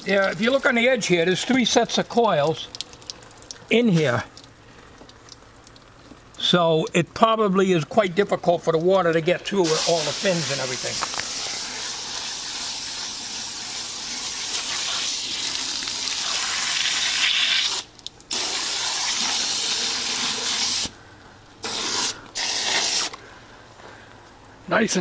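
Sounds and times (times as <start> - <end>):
hose spray hissing: 9.6 - 21.0, 21.6 - 23.2.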